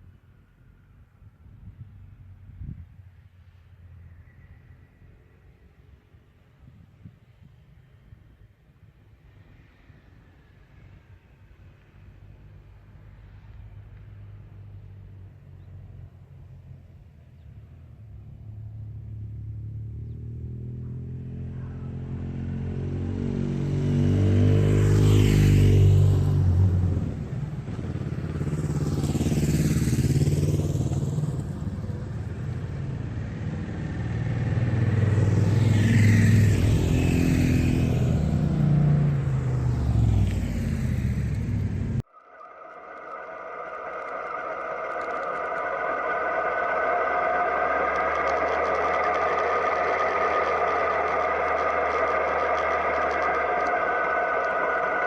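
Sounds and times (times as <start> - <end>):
motorcycles riding past: 18.9 - 42.0, 42.8 - 55.0.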